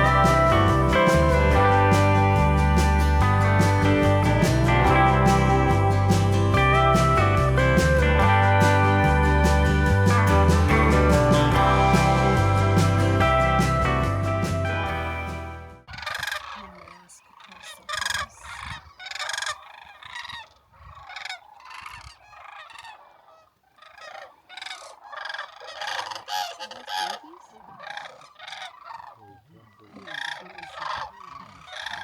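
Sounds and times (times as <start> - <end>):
cranes calling: 15.9 - 32.0.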